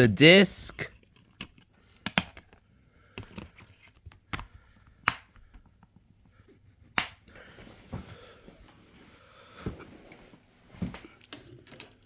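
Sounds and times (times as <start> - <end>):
plastic dvd case clicks and taps: 4.1 - 5.5.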